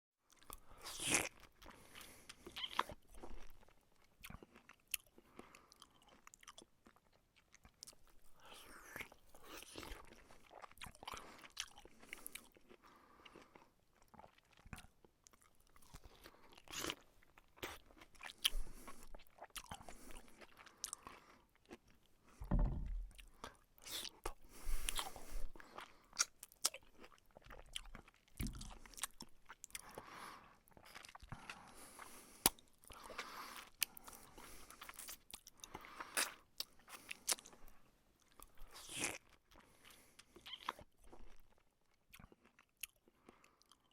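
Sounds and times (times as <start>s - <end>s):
low thumps: 22.4s - 23.2s.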